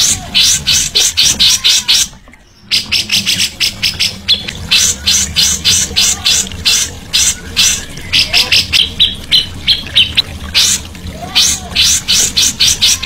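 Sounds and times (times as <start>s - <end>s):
songbird harsh chattering: 2.7s - 10.8s.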